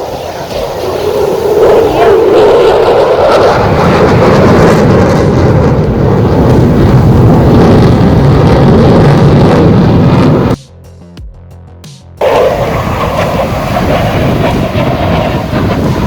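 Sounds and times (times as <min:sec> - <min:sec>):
loud jet engine: 0:00.0 - 0:10.6, 0:12.2 - 0:16.0.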